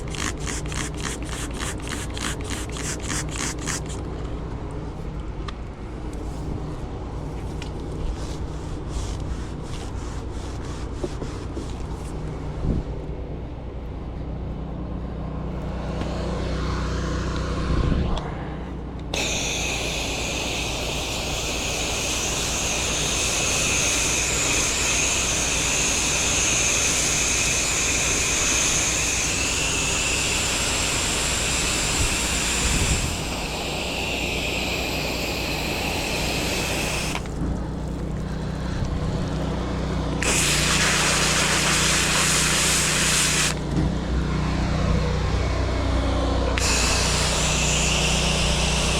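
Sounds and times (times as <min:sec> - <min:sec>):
high-pressure spray hissing: 0:00.0 - 0:04.0, 0:19.2 - 0:37.3, 0:40.2 - 0:43.6, 0:46.6 - 0:48.9
pressure washer motor hum: 0:00.0 - 0:04.2, 0:19.1 - 0:48.9.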